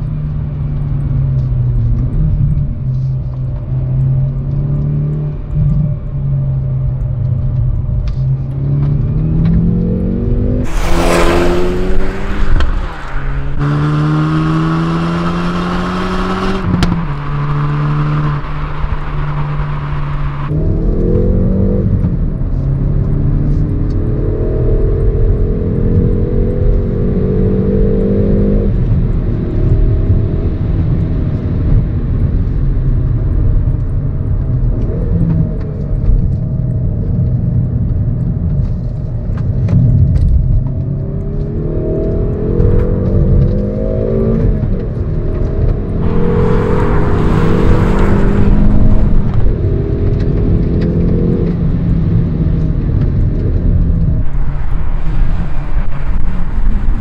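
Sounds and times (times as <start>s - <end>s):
car engine accelerating: 0.0s - 57.0s
loud rushing burst: 10.6s - 15.0s, 46.0s - 49.6s.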